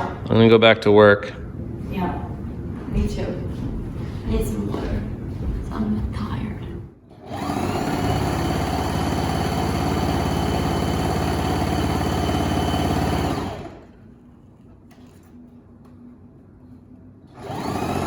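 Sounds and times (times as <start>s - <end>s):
electric sewing machine running: 7.1s - 14.0s, 17.3s - 18.0s.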